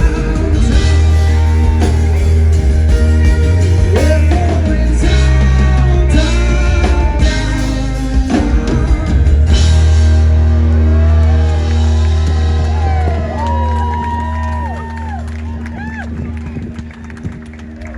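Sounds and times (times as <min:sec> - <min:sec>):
man singing: 0:00.0 - 0:10.3
drums: 0:00.0 - 0:16.8
bass guitar: 0:00.0 - 0:17.9
electric guitar: 0:00.0 - 0:17.9.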